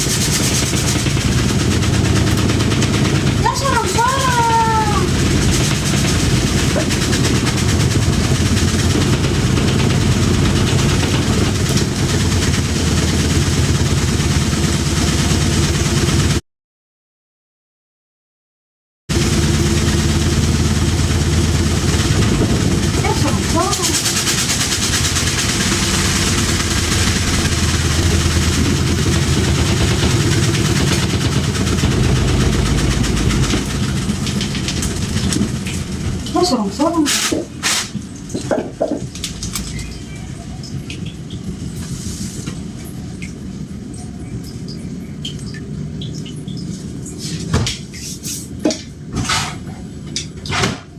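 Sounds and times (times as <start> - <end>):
washing machine spinning and rattling: 0.0 - 16.4, 19.1 - 50.9.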